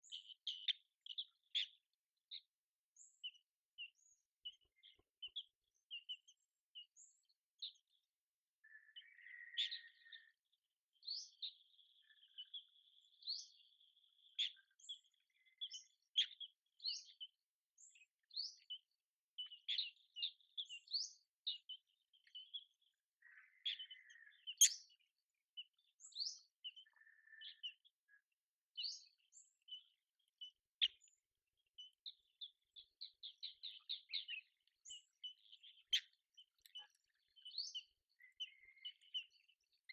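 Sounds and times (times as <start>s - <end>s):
birds chirping: 0.0s - 10.4s, 11.0s - 39.9s
bird trill: 8.6s - 10.3s, 19.4s - 25.0s, 31.8s - 39.9s.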